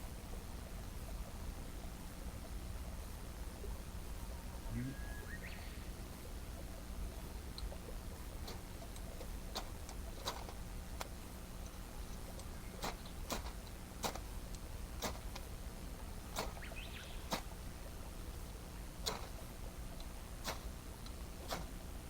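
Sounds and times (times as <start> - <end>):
campfire crackling and popping: 16.2 - 17.7.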